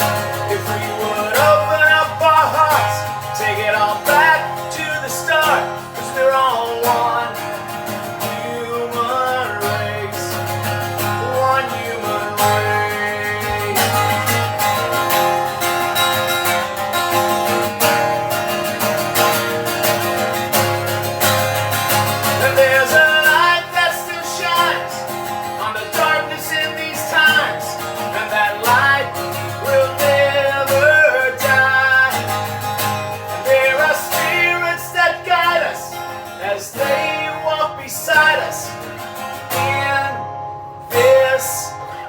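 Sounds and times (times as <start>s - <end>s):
acoustic guitar strumming: 0.0s - 42.0s.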